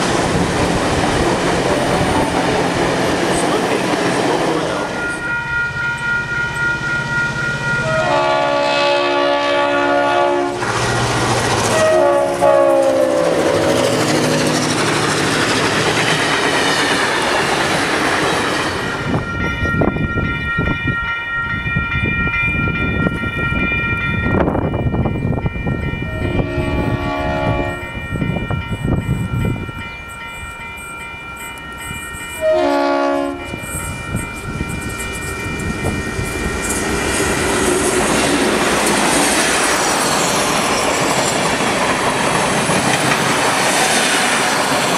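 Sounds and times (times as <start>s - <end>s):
passing train noise: 0.0s - 44.9s
train horn blasts: 7.8s - 10.7s, 11.7s - 14.6s, 26.1s - 28.0s, 32.3s - 33.8s.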